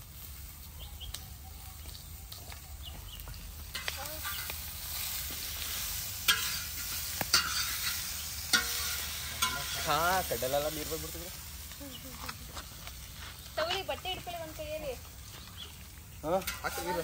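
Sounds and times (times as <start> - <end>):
food sizzling in pan: 0.0 - 17.0
spatula scraping pan: 5.8 - 10.2
spatula clinking on pan: 7.3 - 9.8.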